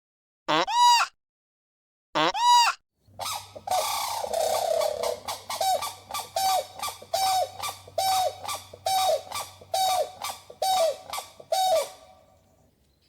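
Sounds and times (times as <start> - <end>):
bird giving harsh calls: 3.2 - 12.4.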